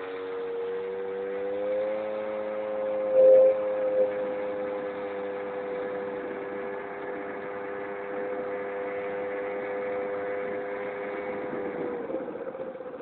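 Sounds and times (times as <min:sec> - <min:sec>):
scooter engine running: 0:03.7 - 0:13.0.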